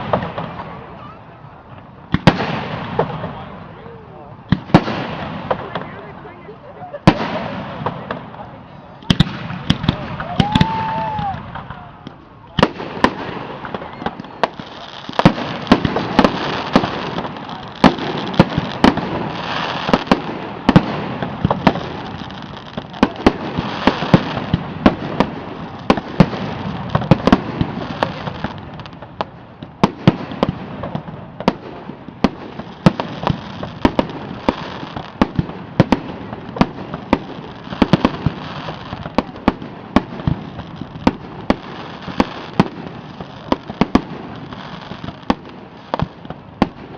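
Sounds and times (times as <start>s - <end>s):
crackling hiss: 0.0s - 46.9s
fireworks bangs: 0.0s - 46.9s.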